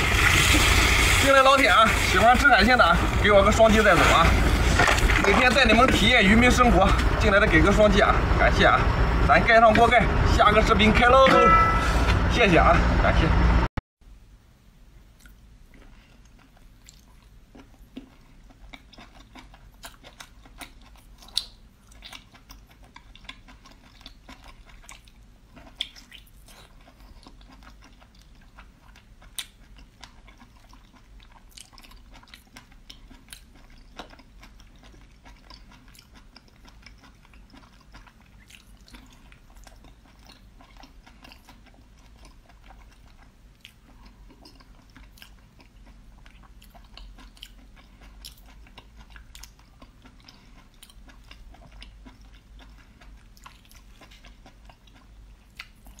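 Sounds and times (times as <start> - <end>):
person chewing wetly: 15.2 - 56.0.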